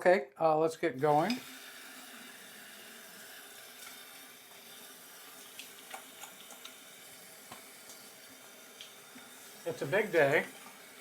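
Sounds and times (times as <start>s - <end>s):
tap running into a sink: 5.4s - 8.1s.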